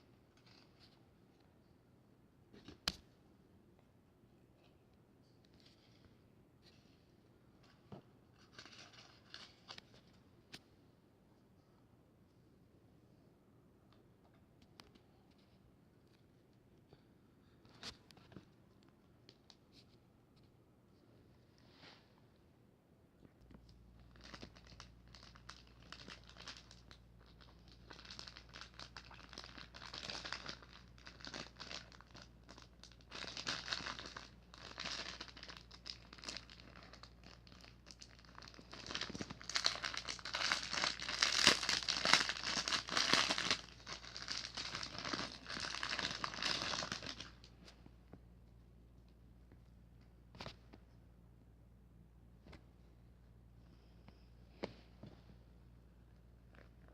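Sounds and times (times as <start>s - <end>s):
packaging crinkling: 24.1s - 47.5s.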